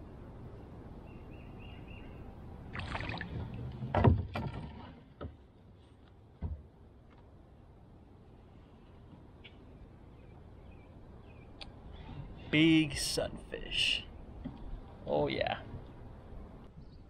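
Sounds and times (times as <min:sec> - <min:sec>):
water splashing: 0:02.7 - 0:05.2.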